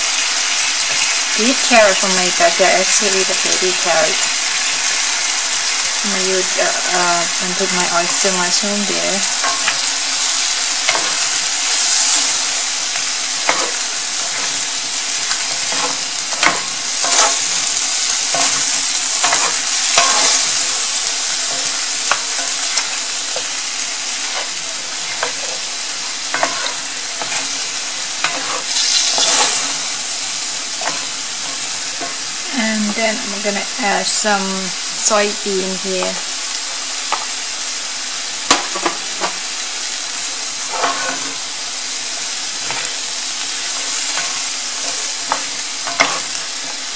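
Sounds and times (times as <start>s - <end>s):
food sizzling in oil: 0.0s - 46.9s
wooden spatula scraping pan: 26.3s - 30.1s, 40.6s - 41.5s.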